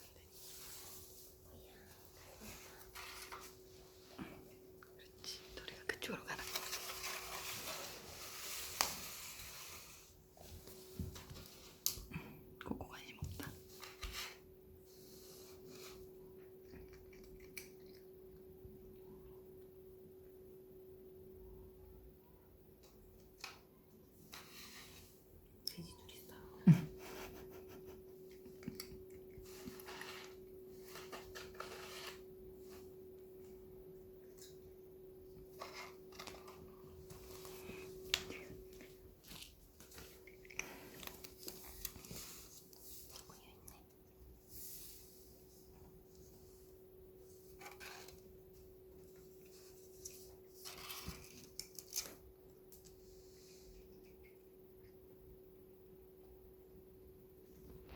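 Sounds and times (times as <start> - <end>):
cats scratching cardboard: 26.9 - 32.4.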